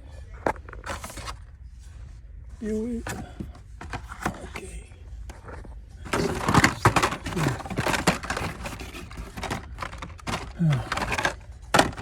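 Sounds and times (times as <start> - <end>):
toy cars in plastic clacking: 5.3 - 12.0.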